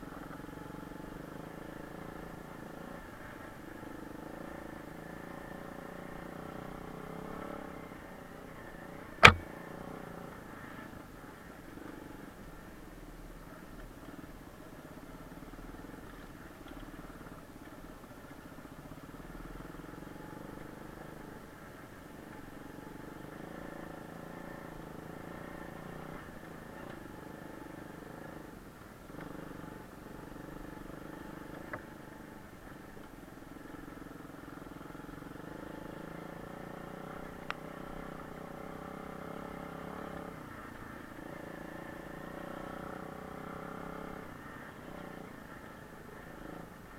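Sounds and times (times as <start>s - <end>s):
pit bike engine revving: 9.2s - 9.4s.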